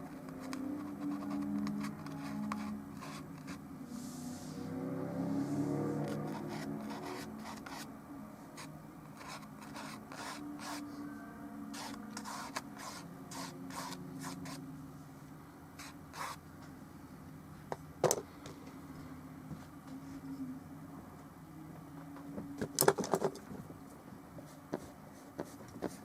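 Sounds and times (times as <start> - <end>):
low steady hum: 0.0 - 25.2
paint brush scrubbing: 9.2 - 10.8, 11.7 - 14.6.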